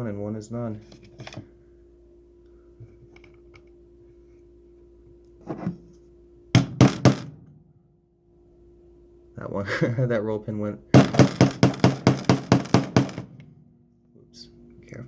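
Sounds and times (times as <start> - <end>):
hammer tapping metal punch: 6.6 - 7.3, 11.0 - 13.5.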